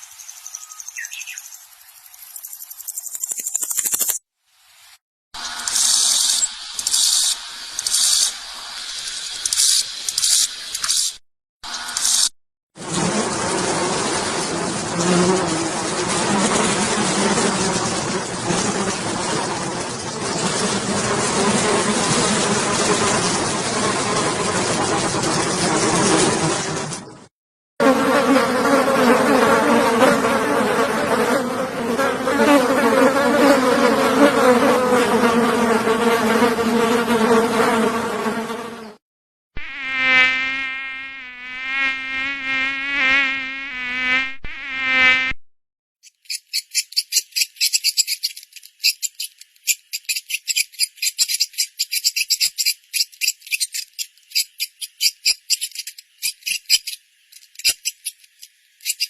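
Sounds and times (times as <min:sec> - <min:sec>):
flying insects buzzing: 0:00.0 - 0:04.2, 0:04.8 - 0:27.1, 0:27.8 - 0:39.0, 0:39.6 - 0:45.4
high-pitched pulsing insect trill: 0:00.0 - 0:04.2, 0:05.4 - 0:12.3
wavering insect buzz: 0:00.0 - 0:04.2, 0:05.4 - 0:26.8, 0:27.8 - 0:39.0, 0:39.6 - 0:45.4.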